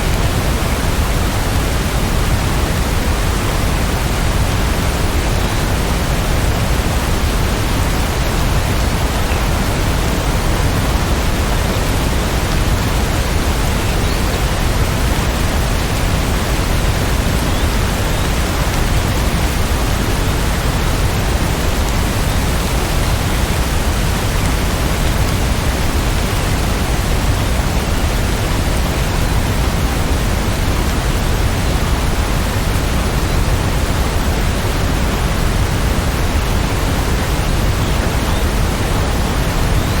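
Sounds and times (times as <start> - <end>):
heavy rainfall: 0.0 - 40.0.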